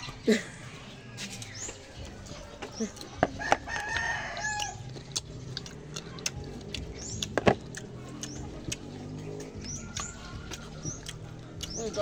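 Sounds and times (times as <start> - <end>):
chewing raw mango: 1.4 - 12.0
wet mouth clicks: 4.6 - 8.9, 9.9 - 11.8.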